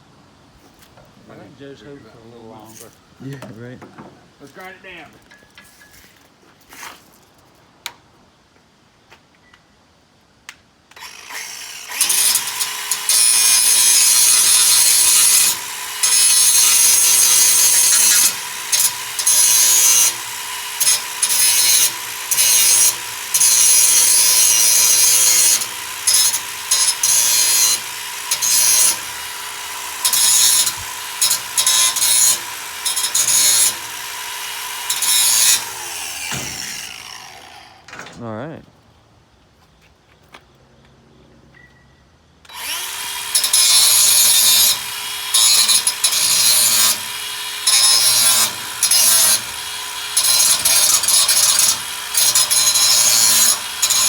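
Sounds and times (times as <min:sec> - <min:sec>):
grinder grinding metal: 0:11.0 - 0:38.6, 0:42.5 - 0:54.0.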